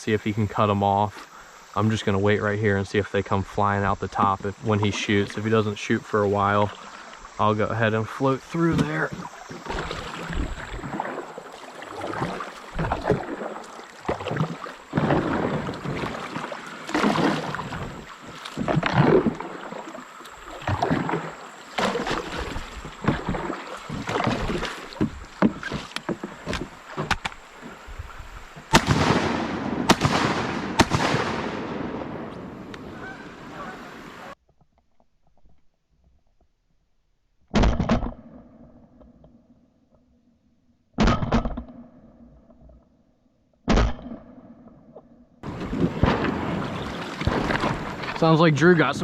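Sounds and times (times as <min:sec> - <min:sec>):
paddle splashing in water: 0:03.4 - 0:34.4, 0:45.4 - 0:49.0
shotgun shots: 0:28.7 - 0:32.6.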